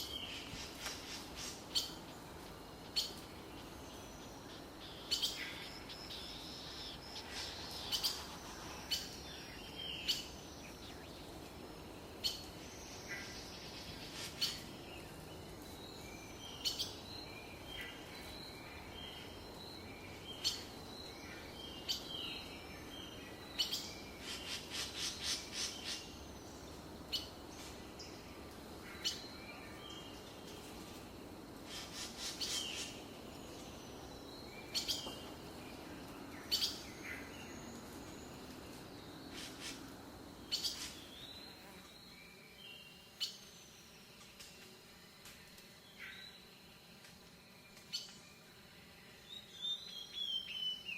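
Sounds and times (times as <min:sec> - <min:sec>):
faint background hiss: 0:00.0 - 0:50.9
birds chirping: 0:02.8 - 0:15.6.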